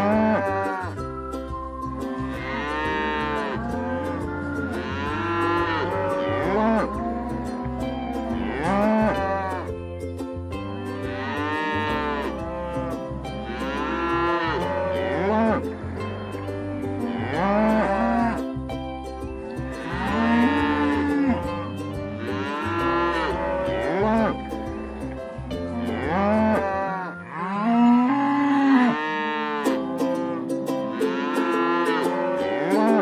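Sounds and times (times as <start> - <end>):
cattle mooing: 2.4 - 9.7, 11.1 - 15.6, 17.0 - 18.4, 19.8 - 21.5, 22.2 - 24.4, 25.8 - 29.7, 31.0 - 33.0.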